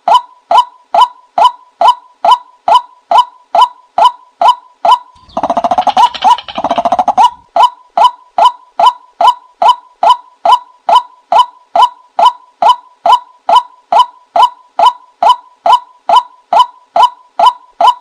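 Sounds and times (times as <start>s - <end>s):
recorded bird call: 0.0s - 18.0s
rattling bird notes: 5.2s - 7.4s.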